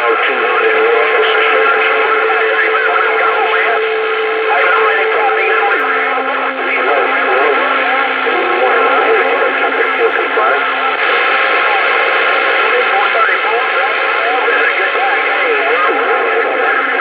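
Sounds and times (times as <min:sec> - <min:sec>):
heterodyne whistle: 0:00.0 - 0:12.6
distant voices over radio: 0:00.0 - 0:17.0
radio static: 0:00.0 - 0:17.0.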